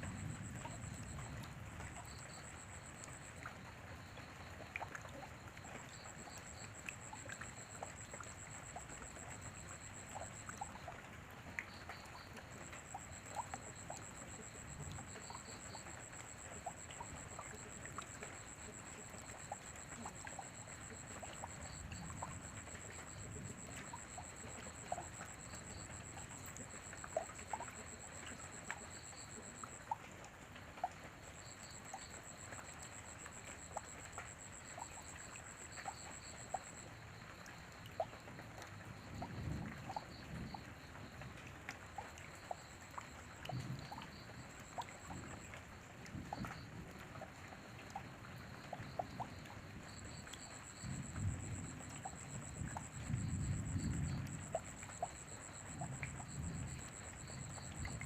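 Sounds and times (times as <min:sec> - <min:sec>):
light rain dripping: 0:00.0 - 0:58.0
crickets trilling: 0:11.7 - 0:30.0, 0:41.9 - 0:58.0.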